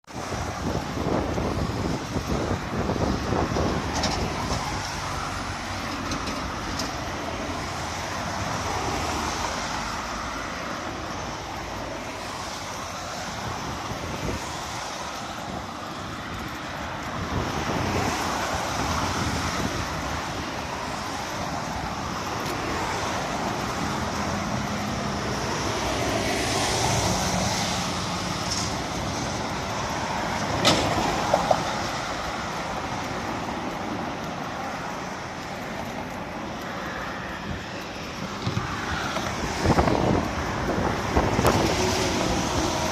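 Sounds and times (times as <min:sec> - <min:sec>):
vehicle engines: 0:00.1 - 0:42.9
tyre noise: 0:12.1 - 0:42.9.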